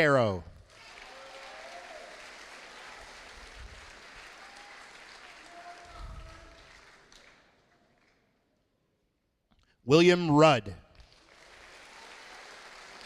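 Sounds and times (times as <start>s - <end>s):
audience applauding: 0.0s - 8.2s, 10.2s - 13.0s.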